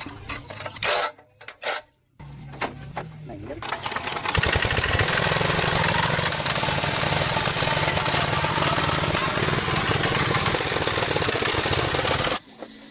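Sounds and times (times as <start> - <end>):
bulldozer engine running: 2.2 - 12.9.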